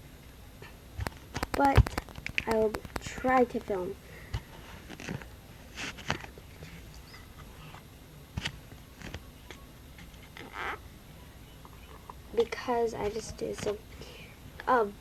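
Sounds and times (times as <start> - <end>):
small clicks and rustles of hands: 1.0 - 7.2, 11.6 - 13.8.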